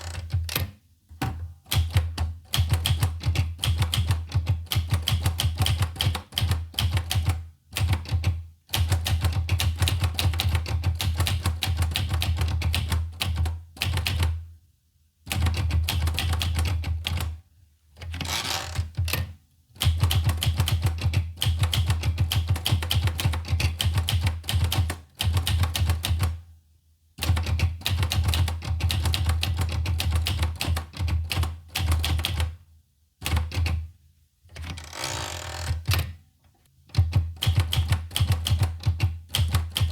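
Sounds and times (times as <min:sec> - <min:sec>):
typewriter keys clacking: 0:19.0 - 0:26.4, 0:27.2 - 0:32.5, 0:36.9 - 0:39.9.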